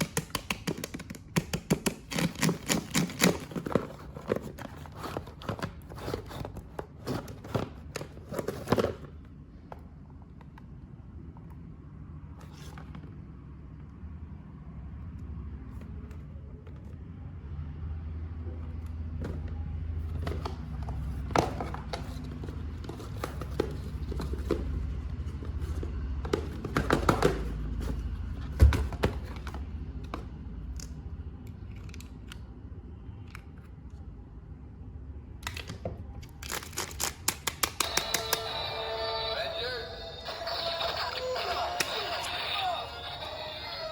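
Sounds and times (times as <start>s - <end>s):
packaging tearing: 0.0s - 7.2s, 35.5s - 38.4s
plastic packaging crinkling: 35.5s - 38.4s.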